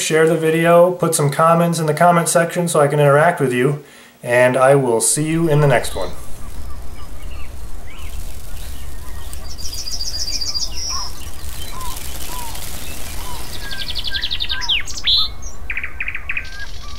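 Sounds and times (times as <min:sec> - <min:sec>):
bird chirps and calls: 0:05.2 - 0:16.9
bird trilling: 0:05.2 - 0:16.9
steady low rumble: 0:05.2 - 0:16.9.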